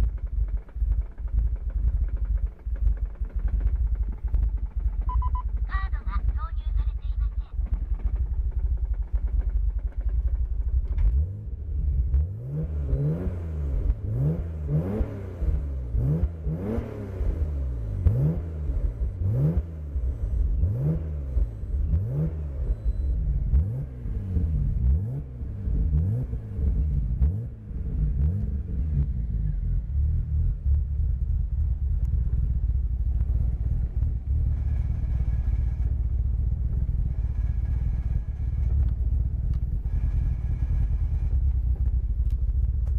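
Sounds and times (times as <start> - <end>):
car engine idling: 0.0 - 42.9
car engine revving: 0.0 - 42.9.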